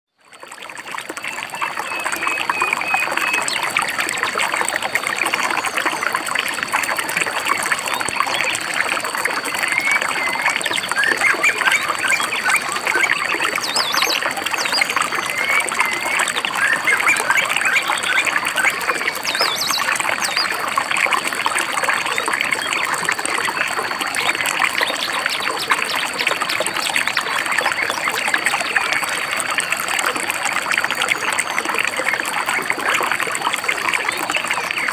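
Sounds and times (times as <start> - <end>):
stream trickling and splashing: 0.1 - 34.9
birds chirping: 9.5 - 20.6.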